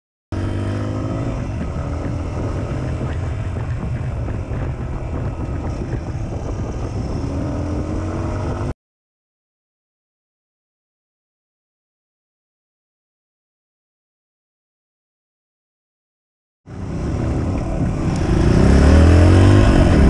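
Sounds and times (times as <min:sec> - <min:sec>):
motorcycle engine running: 0:00.3 - 0:08.7, 0:16.7 - 0:20.0.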